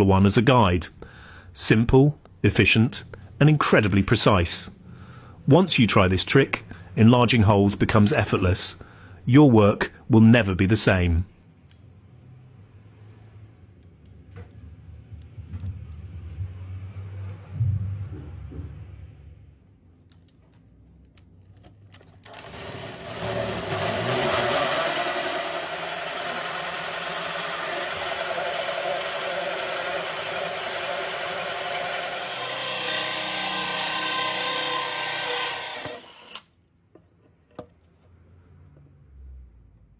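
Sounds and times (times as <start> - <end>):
power drill with hole saw cutting: 22.3 - 36.5
sharp drill clicks: 22.3 - 36.5.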